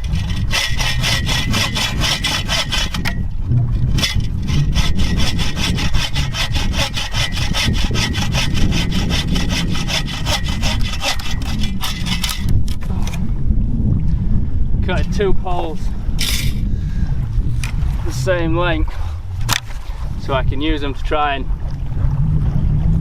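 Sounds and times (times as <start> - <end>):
hand saw cutting wood: 0.0 - 3.2, 4.0 - 12.6.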